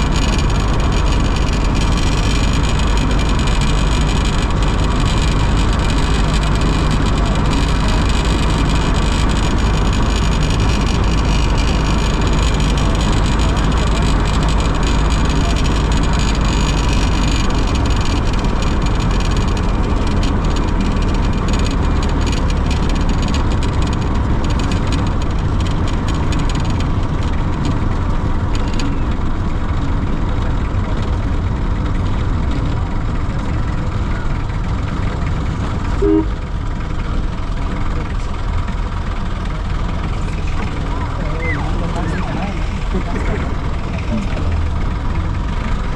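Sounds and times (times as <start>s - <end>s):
road noise: 0.0s - 45.9s
vehicle engine rumble: 0.0s - 45.9s
double beep: 36.0s - 36.4s.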